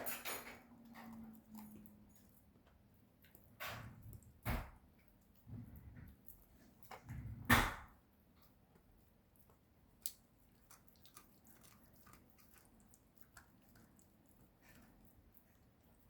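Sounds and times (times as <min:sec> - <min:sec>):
chewing clicks: 0:10.0 - 0:15.5
dog crunching a chew: 0:10.0 - 0:16.0.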